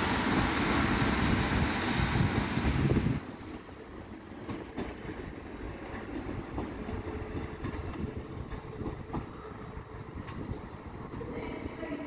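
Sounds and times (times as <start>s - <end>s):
train low rumble: 0.0s - 12.0s
train wheel clicks: 5.9s - 9.4s.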